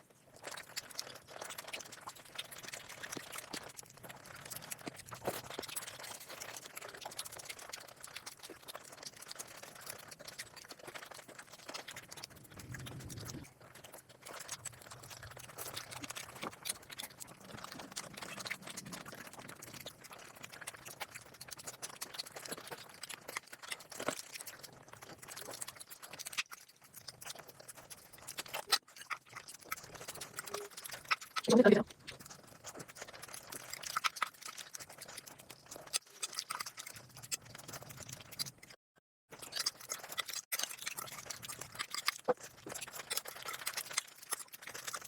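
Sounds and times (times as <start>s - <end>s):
chewing and crunching: 0.0s - 45.0s
wet mouth noises: 0.2s - 38.8s, 39.4s - 45.0s.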